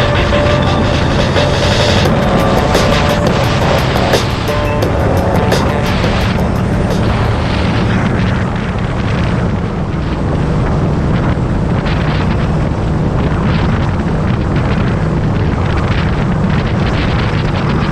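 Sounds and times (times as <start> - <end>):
motorcycle engine running: 0.0 - 9.8
wind buffeting microphone: 0.0 - 17.9.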